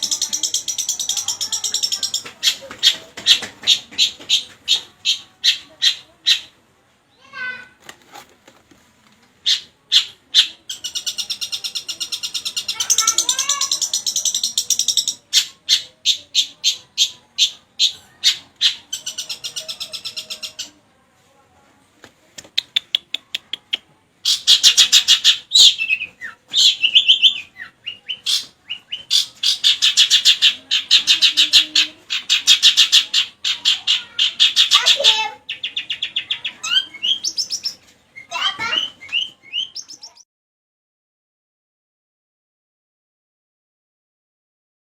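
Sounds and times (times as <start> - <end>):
shrike singing: 24.3 - 40.2.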